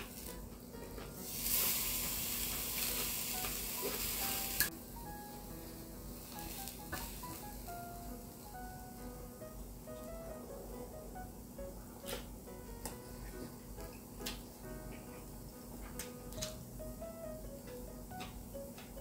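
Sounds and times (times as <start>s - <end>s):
meat sizzling on grill: 0.0s - 11.4s
soft background music: 0.0s - 19.0s.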